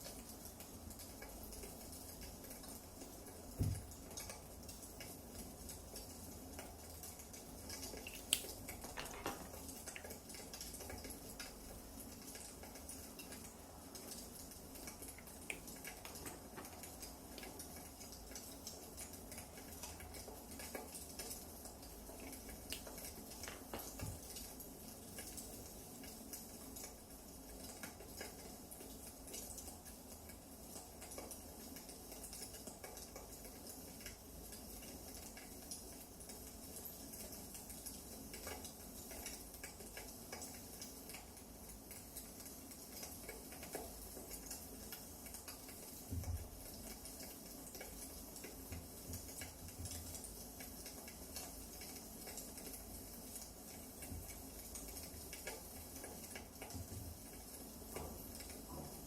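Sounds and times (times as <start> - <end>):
wood fire crackling: 0.0 - 59.0
dull knock: 3.6 - 3.9.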